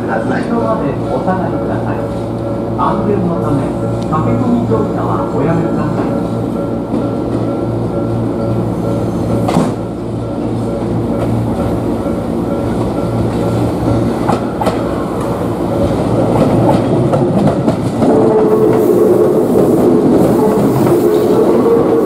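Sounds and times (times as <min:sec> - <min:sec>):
train hum: 0:00.0 - 0:22.0.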